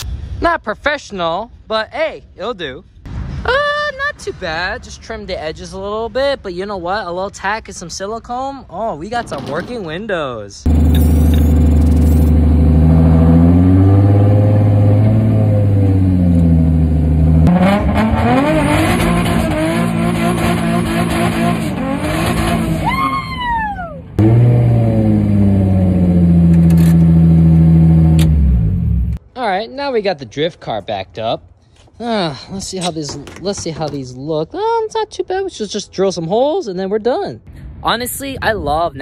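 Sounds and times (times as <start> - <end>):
falling whine: 10.7 - 18.6
loud car engine revving: 10.7 - 22.9, 24.2 - 29.2.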